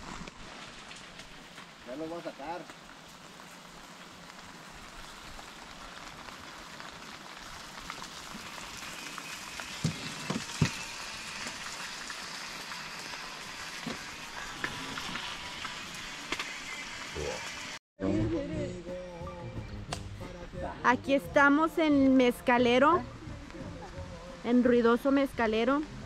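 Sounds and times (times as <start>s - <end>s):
rain falling on trees and tent: 0.0s - 16.4s.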